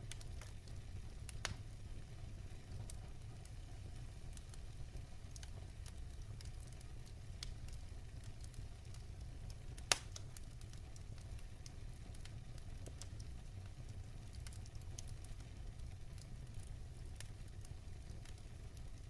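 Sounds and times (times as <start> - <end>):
fire rumbling: 0.0 - 19.0
wood crackling: 8.4 - 10.8
sharp pop of burning wood: 9.8 - 10.3.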